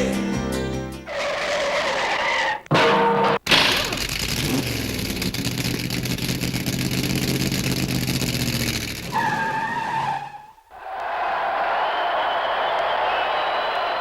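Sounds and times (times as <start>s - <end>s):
vehicle engine droning: 3.4s - 9.4s.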